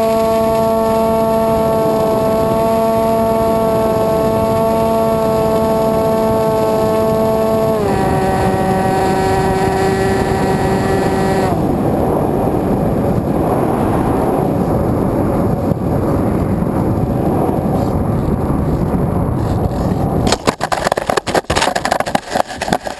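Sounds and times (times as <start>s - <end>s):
air rushing past gliding plane: 0.0s - 20.3s
electric motor and propeller whining: 0.0s - 22.9s
knocks and scrapes of landing: 20.3s - 22.9s.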